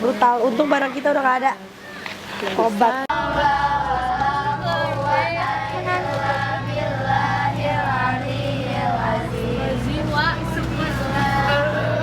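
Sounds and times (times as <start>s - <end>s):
people singing with music: 3.1s - 12.0s
steady low hum: 3.1s - 12.0s.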